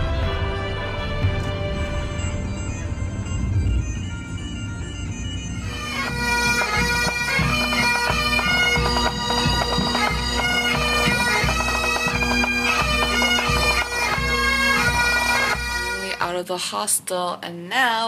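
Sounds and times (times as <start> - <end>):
bagpipe melody with drone: 0.0 - 16.4
drum beat: 6.0 - 16.1.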